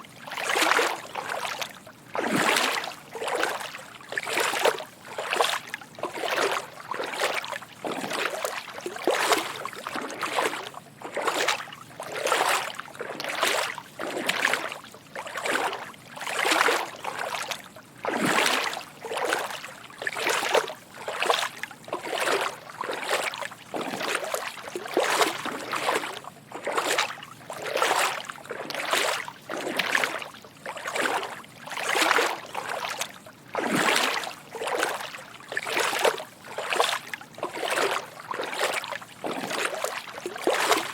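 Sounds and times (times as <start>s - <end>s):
footsteps wading through water: 0.0s - 40.9s.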